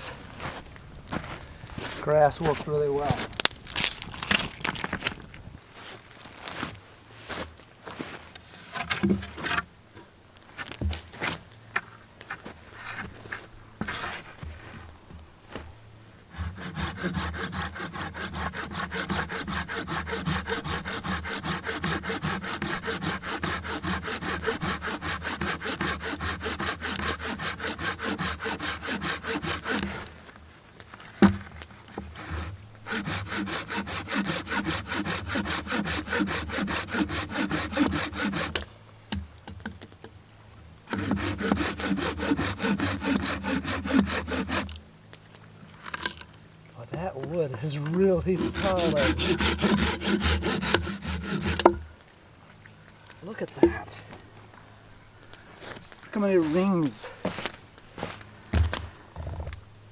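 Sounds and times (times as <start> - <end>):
hand saw cutting log: 1.8 - 5.2, 13.8 - 14.4, 16.2 - 30.3, 31.2 - 38.7, 40.9 - 44.8, 47.2 - 51.8, 55.6 - 58.8.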